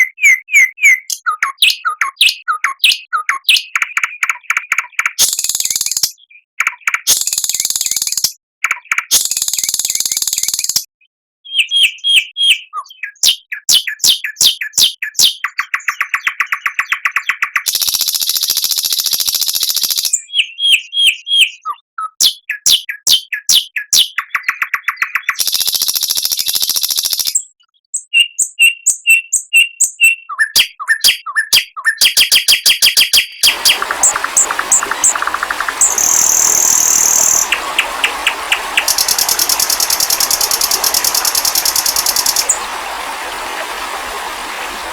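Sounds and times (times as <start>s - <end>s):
songbird chirps and whistles: 0.0s - 10.8s, 11.4s - 44.9s
background hiss: 33.4s - 44.9s.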